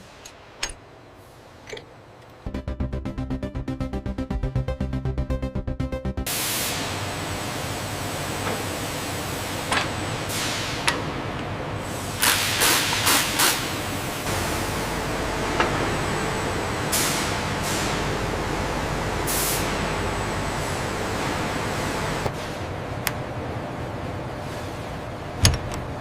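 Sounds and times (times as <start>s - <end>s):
factory machinery humming: 0.0s - 26.0s
hisses of released air: 6.3s - 7.2s, 10.3s - 10.8s, 11.8s - 14.2s, 19.3s - 19.8s.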